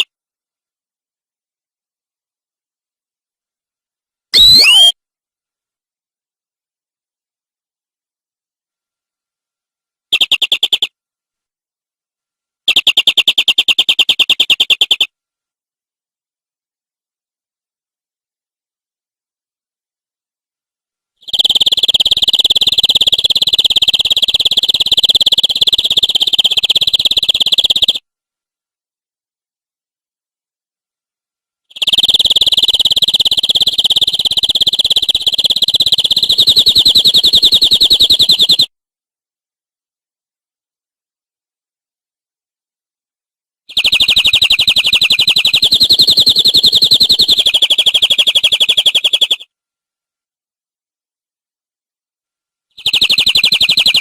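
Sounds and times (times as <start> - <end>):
canary trilling: 4.4 - 4.9, 43.7 - 49.4, 52.8 - 54.0.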